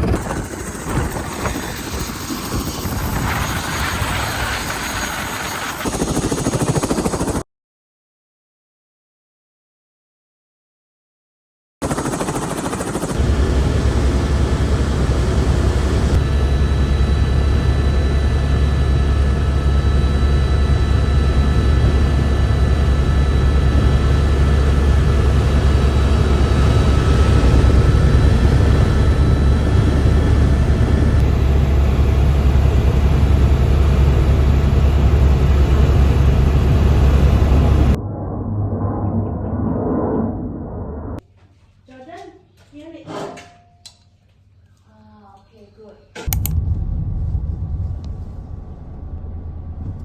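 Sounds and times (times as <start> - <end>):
helicopter rotor drone: 0.0 - 7.4, 11.8 - 38.0
turbine whine: 0.0 - 7.4, 12.6 - 41.2, 46.2 - 50.0.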